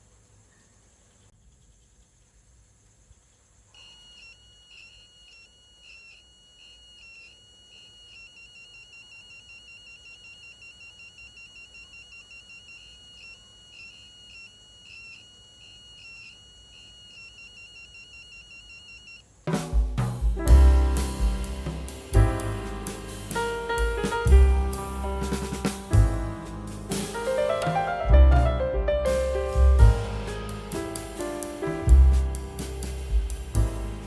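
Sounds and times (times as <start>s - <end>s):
electronic buzzer tone: 3.8s - 19.2s.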